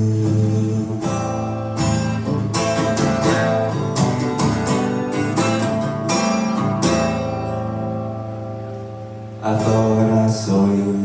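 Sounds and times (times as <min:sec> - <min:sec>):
acoustic guitar strumming: 0:00.0 - 0:11.0
person singing: 0:09.4 - 0:11.0.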